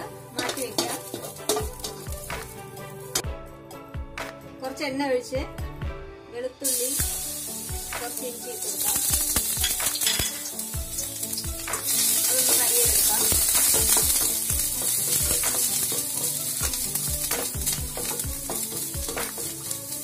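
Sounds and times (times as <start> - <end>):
garlic sizzling in hot oil: 0.0 - 3.2, 6.6 - 20.0
spatula scraping and knocking pan: 0.3 - 2.5, 12.0 - 19.9.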